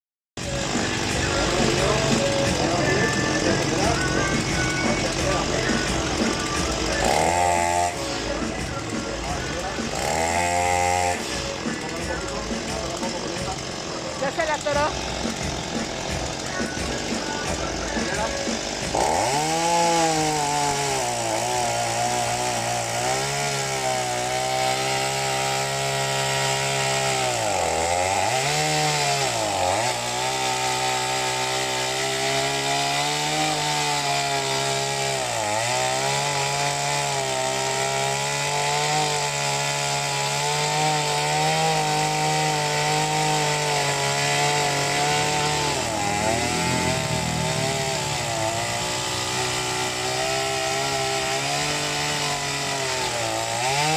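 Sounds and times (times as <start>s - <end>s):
chainsaw cutting wood: 0.4s - 53.9s.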